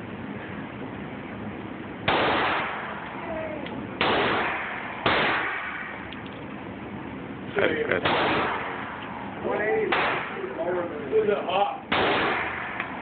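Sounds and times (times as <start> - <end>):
handgun shots with echo: 4.0 - 5.9, 8.0 - 9.0, 9.9 - 10.4, 11.9 - 13.0.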